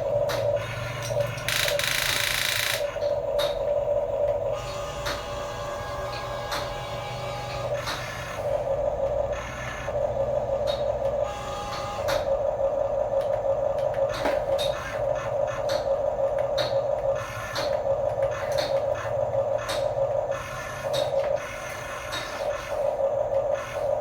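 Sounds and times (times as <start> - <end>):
toy electric motor whining: 0.6 - 3.0.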